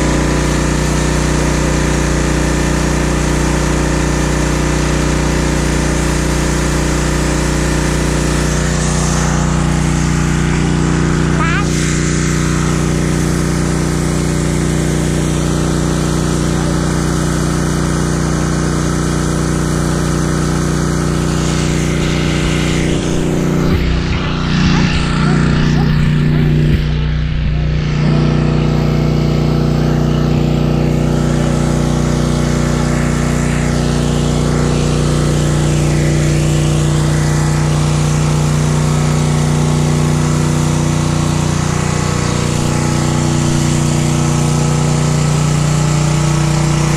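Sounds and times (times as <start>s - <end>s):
pressure washer engine running: 0.0s - 46.9s.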